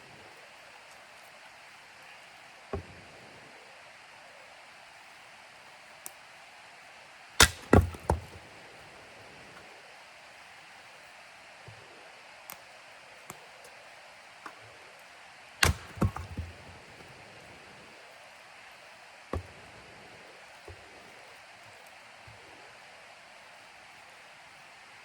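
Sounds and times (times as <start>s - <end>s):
axe chopping wood: 7.4s - 8.4s, 15.6s - 17.0s, 19.4s - 19.6s.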